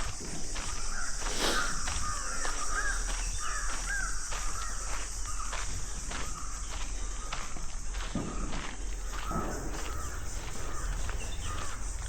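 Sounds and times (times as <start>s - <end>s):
footsteps on forest path: 0.0s - 12.0s
insect drone: 0.0s - 12.0s
bird calling: 0.6s - 5.6s, 8.2s - 12.0s.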